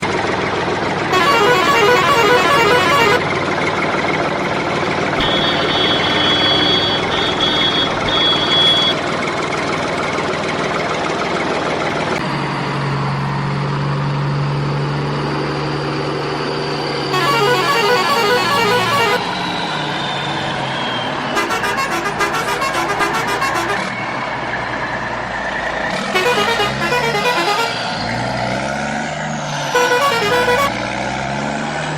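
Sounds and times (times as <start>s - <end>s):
vehicle engine noise: 0.0s - 31.9s
truck horn honking: 1.0s - 3.4s, 4.6s - 9.0s, 17.1s - 19.3s, 21.3s - 24.0s, 26.0s - 28.3s, 29.5s - 30.9s
long tone falling in pitch: 1.1s - 3.3s, 17.1s - 19.2s
high on-off beeping: 5.2s - 9.0s.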